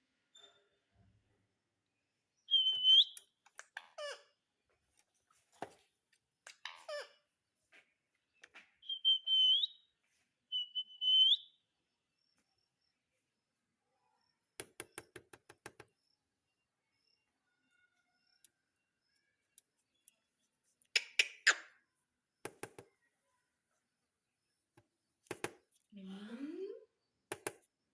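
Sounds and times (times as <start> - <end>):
parrot whistling: 2.5 - 3.2, 8.8 - 9.8, 10.5 - 11.5.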